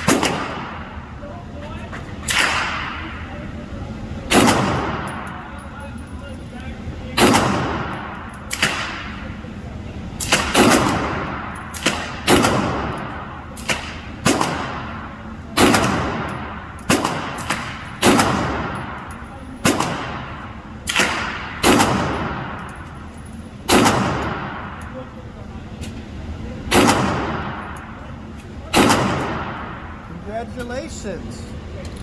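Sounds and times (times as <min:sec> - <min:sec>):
pistol shots echoing: 0:00.0 - 0:01.1, 0:02.2 - 0:03.3, 0:04.3 - 0:05.5, 0:07.2 - 0:09.4, 0:10.2 - 0:23.1, 0:23.7 - 0:25.0, 0:26.7 - 0:28.0, 0:28.7 - 0:30.0.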